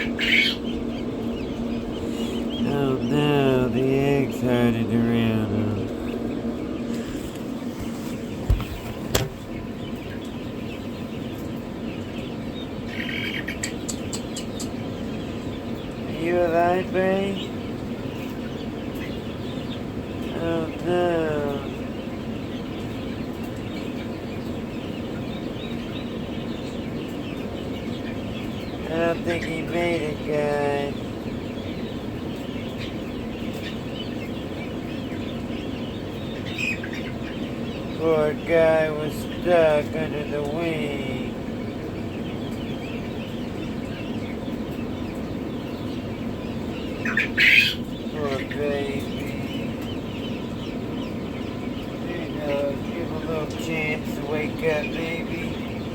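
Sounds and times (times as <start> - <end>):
chicks peeping: 0.0 - 55.9
steady low hum: 0.0 - 55.9
sharp knocks: 8.4 - 9.4.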